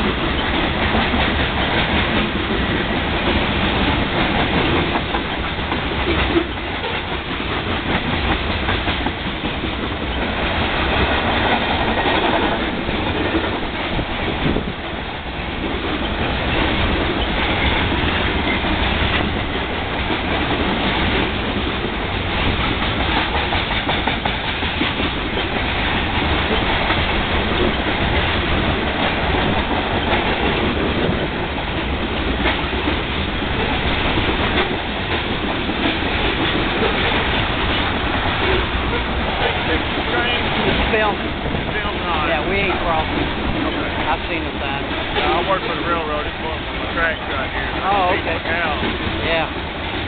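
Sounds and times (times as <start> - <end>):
freight train rumbling past: 0.0 - 50.0.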